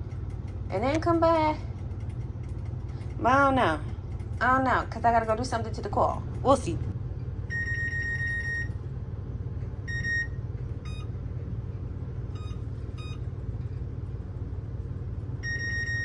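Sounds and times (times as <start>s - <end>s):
low hum: 0.0s - 16.0s
appliance electronic beeps: 7.5s - 8.8s, 9.8s - 11.1s, 12.3s - 13.3s, 15.4s - 16.0s.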